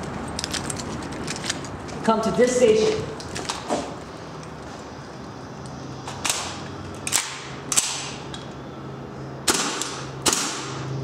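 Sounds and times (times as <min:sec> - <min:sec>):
airsoft gun shots: 0:09.4 - 0:10.8.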